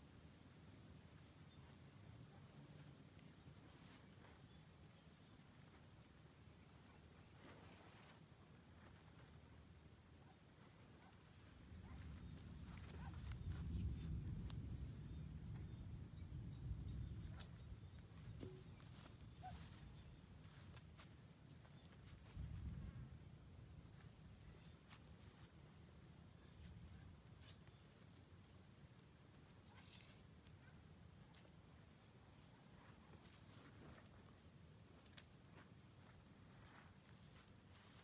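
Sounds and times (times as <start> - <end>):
faint high-pitched hum: 0.0 - 38.0.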